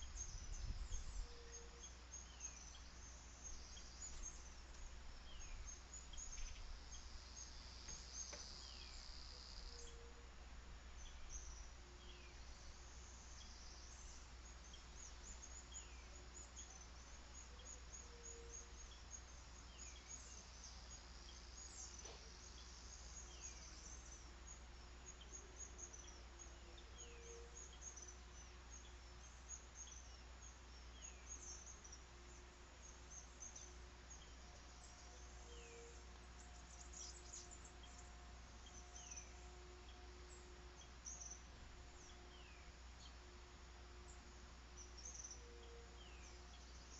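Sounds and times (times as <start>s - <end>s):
birds chirping: 0.0s - 10.3s
insect sounds: 0.0s - 46.9s
low steady hum: 0.0s - 46.9s
steady high buzz: 0.0s - 46.9s.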